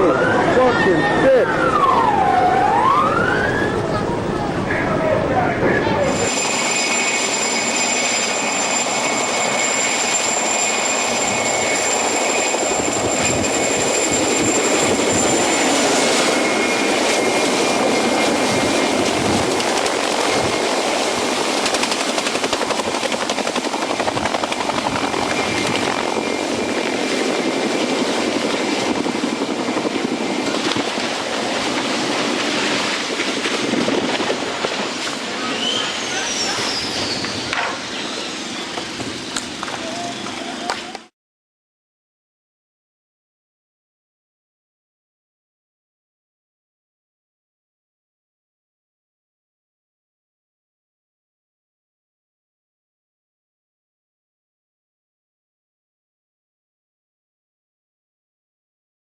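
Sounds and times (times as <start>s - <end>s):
helicopter rotor and engine: 0.2s - 41.1s
thin high whine: 3.6s - 19.1s, 34.7s - 40.7s.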